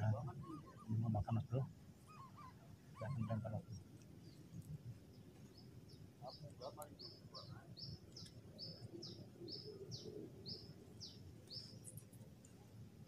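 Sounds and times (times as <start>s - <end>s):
small bird singing: 0.0s - 12.7s.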